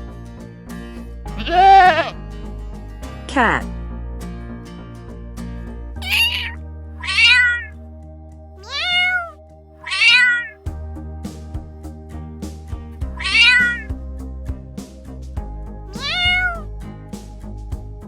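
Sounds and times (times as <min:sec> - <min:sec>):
background music with light beat: 0:00.0 - 0:18.0
cat meowing: 0:01.4 - 0:02.2, 0:06.0 - 0:07.7, 0:08.6 - 0:10.6, 0:13.2 - 0:13.9, 0:15.9 - 0:16.6.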